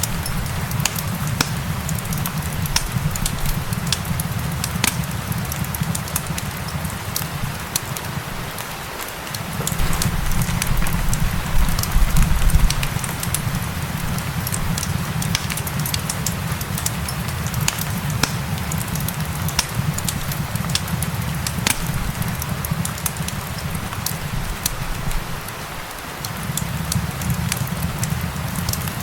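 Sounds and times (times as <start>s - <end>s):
fireplace crackling and popping: 0.0s - 29.0s
gentle rain hiss: 0.0s - 29.0s.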